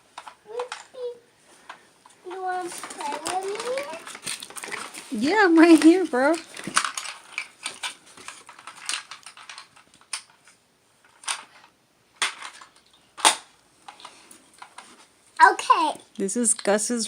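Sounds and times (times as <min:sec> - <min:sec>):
faint rustling: 0:00.0 - 0:16.0
plastic toy pieces clicking: 0:00.2 - 0:01.0, 0:02.3 - 0:04.9, 0:05.6 - 0:14.8.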